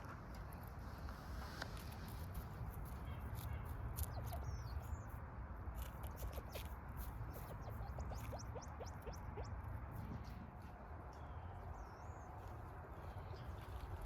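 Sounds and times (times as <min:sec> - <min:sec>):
high bird chirps: 0:04.0 - 0:05.1, 0:07.3 - 0:09.6.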